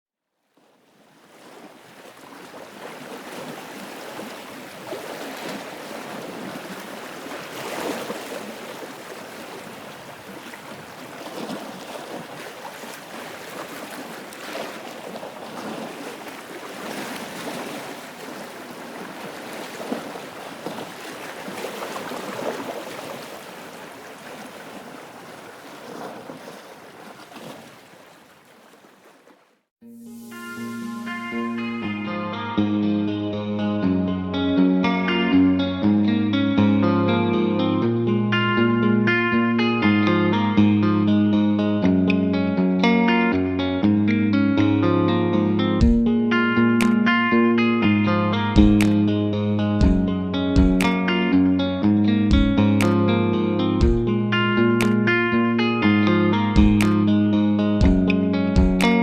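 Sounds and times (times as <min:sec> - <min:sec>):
ocean waves washing in: 0:00.9 - 0:29.3, 0:29.9 - 0:32.3.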